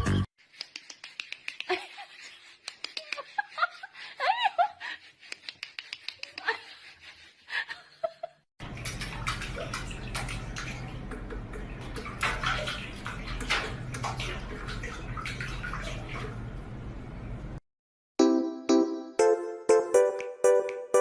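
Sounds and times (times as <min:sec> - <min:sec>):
running water splashing: 0:08.6 - 0:16.6.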